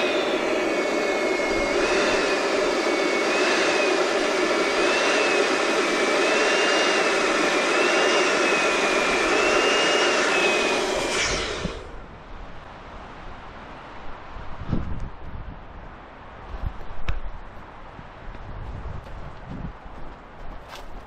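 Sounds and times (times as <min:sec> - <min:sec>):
electric balloon inflator blowing air: 0:00.0 - 0:12.0.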